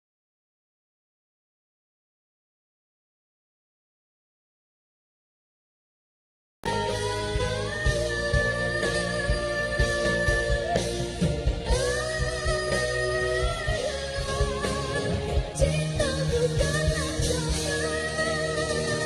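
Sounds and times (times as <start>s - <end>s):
band with steady drum beat: 6.7s - 19.0s
woman singing: 6.7s - 19.0s.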